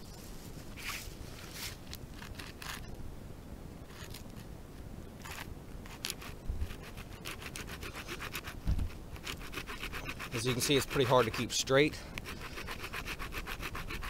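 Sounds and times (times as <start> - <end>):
saw rasping through wood: 5.9 - 14.0
low thump: 8.6 - 8.9.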